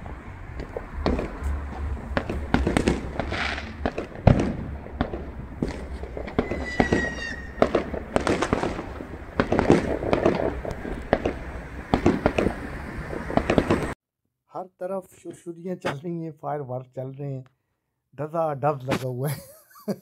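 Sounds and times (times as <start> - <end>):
fireworks banging and crackling: 0.0 - 14.0
whistling tone: 6.4 - 7.6.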